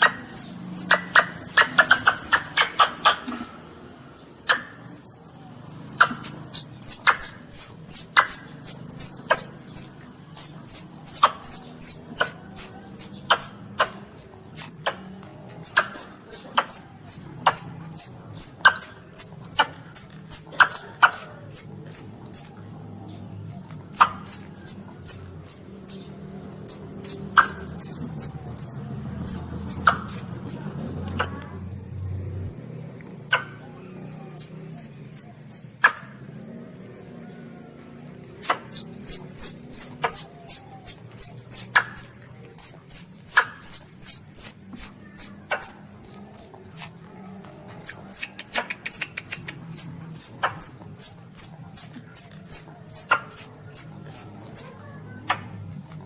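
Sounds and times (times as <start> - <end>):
baby civet squeaking: 0.0 - 3.3, 6.0 - 22.6, 23.8 - 30.4, 31.0 - 31.5, 33.2 - 37.3, 38.3 - 47.0, 47.7 - 55.0
sharp clicks: 38.3 - 54.7.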